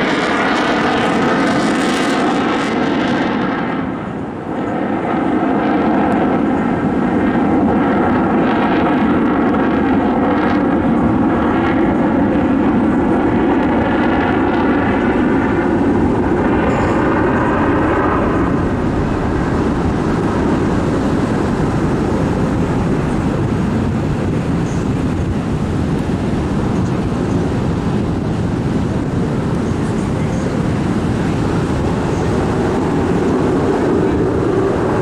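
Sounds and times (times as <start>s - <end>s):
aircraft engine fly-by: 0.0s - 35.0s.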